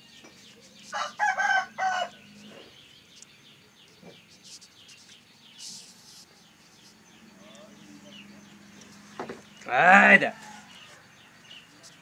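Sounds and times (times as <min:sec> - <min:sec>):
small birds chirping: 0:00.0 - 0:12.0
rooster crowing: 0:00.9 - 0:02.3, 0:09.9 - 0:11.3.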